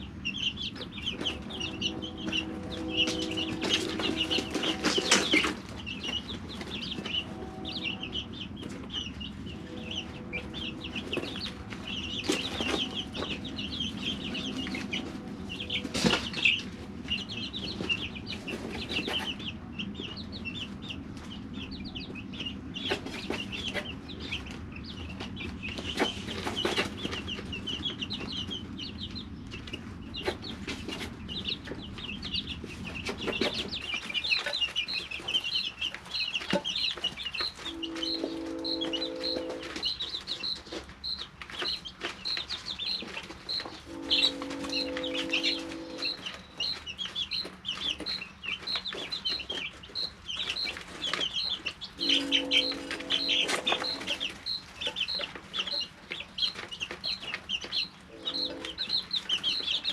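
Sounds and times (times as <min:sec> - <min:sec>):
steady low tone: 0:00.0 - 0:06.0, 0:07.0 - 0:17.5, 0:52.0 - 0:54.4
low rumble: 0:00.0 - 0:30.6
chicks peeping: 0:00.0 - 0:59.9
single chick peeping steadily: 0:00.0 - 0:59.9.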